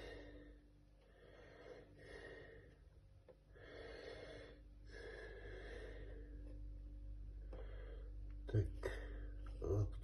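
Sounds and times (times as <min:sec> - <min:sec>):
person breathing: 0:00.0 - 0:06.7, 0:07.4 - 0:09.6
low steady hum: 0:00.0 - 0:10.0.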